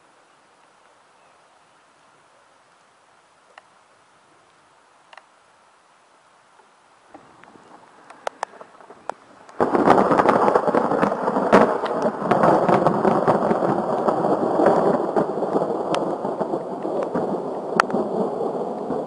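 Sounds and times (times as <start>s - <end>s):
thunder rumbling and crackling: 7.1s - 19.0s.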